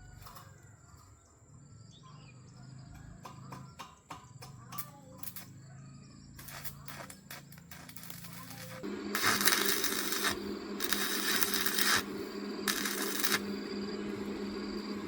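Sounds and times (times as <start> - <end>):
bird chirps: 1.7 - 4.0
steady high-pitched tone: 7.8 - 15.0.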